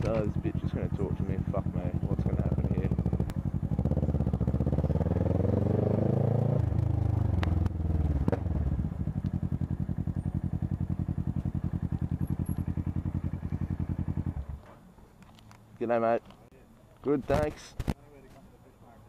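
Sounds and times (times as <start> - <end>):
motorcycle engine revving and idling: 0.0 - 14.8.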